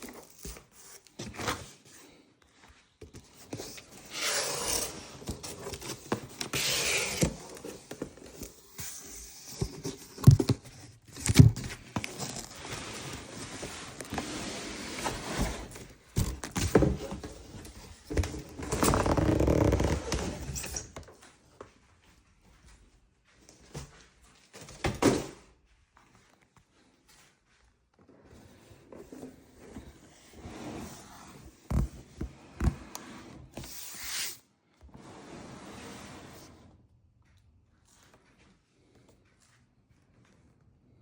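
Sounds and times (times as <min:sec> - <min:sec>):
scraping and rustling handling: 0:00.0 - 0:21.0.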